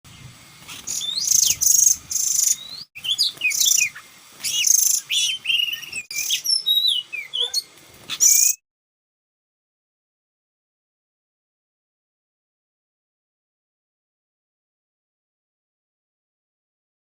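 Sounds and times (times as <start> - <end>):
magpie-robin song: 0.1 - 8.6.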